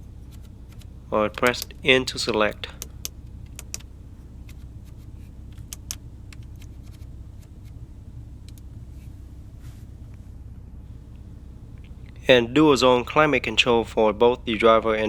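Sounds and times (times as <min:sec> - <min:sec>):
car cabin low hum: 0:00.0 - 0:15.0
control knob clicks: 0:00.3 - 0:01.8, 0:02.7 - 0:07.8.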